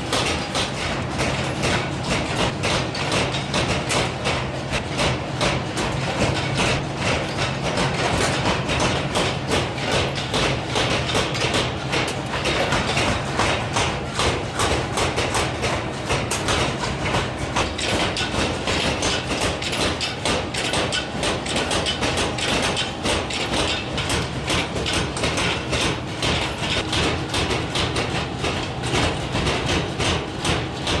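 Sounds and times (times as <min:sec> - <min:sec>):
mechanical hammer striking metal: 0:00.0 - 0:31.0.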